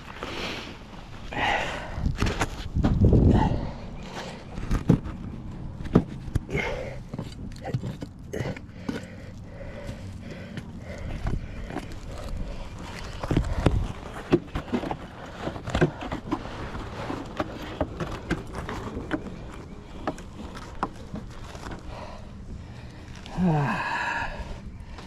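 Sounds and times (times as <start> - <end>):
knocks and clicks of wooden boxes: 4.6 - 9.1, 13.2 - 21.3.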